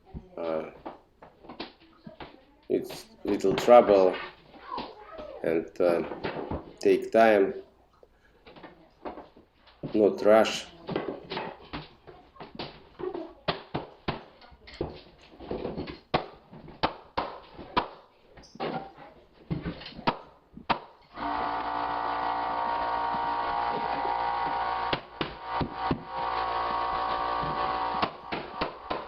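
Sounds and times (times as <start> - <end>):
motor hum: 21.2 - 29.0.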